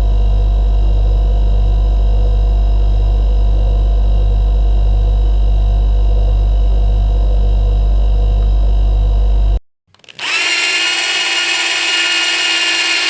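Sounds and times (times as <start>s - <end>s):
motor humming steadily: 10.2s - 13.0s.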